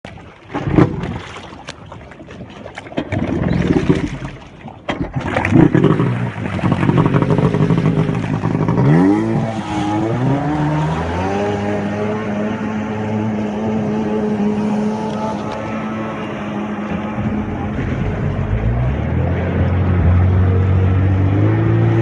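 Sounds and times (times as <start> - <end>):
jet ski engine revving: 5.2 - 22.0.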